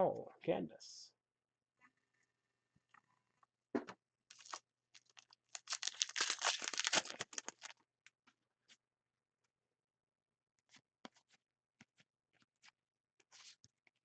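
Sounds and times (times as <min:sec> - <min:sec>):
foil wrapper crinkling and tearing: 0:04.3 - 0:07.8.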